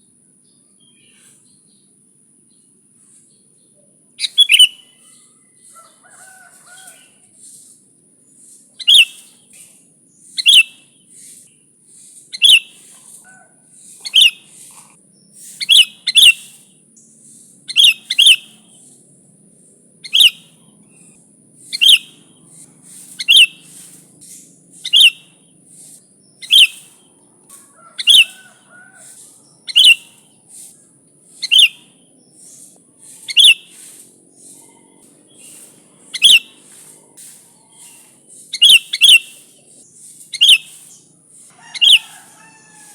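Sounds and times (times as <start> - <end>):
bulbul calling: 4.2 - 7.8, 8.4 - 19.0, 20.0 - 42.3
steady high hiss: 6.4 - 27.2.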